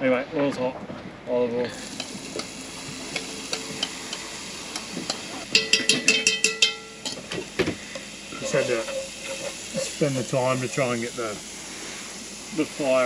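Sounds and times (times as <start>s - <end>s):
vegetables sizzling in hot oil: 1.7s - 13.0s
metal spoon clinking against bowl: 3.2s - 4.2s, 5.1s - 7.2s.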